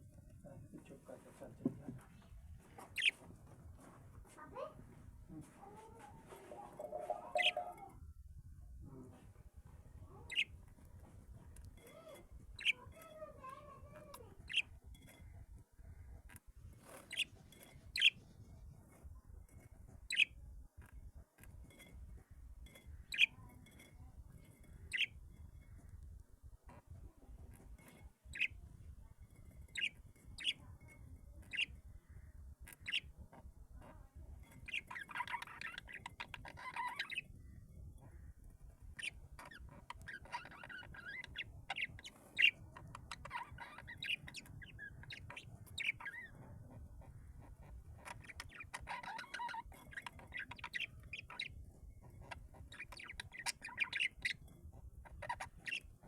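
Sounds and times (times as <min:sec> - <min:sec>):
birds chirping: 0:00.5 - 0:08.0, 0:08.9 - 0:56.0
faint bird calls: 0:04.4 - 0:08.0.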